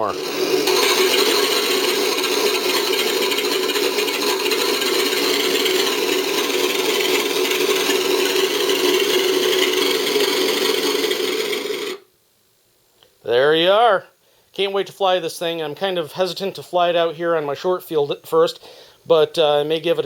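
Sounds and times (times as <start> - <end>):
simulated piston engines from speakers: 0.0 - 12.1.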